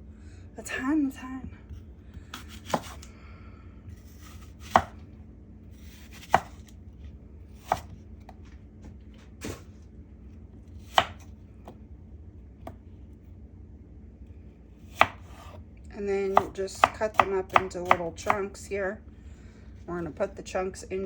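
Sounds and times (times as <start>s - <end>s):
knife chopping on cutting board: 2.3s - 3.0s, 4.0s - 5.0s, 5.8s - 6.7s, 7.6s - 8.0s, 10.8s - 11.8s, 14.9s - 15.6s, 16.3s - 18.4s.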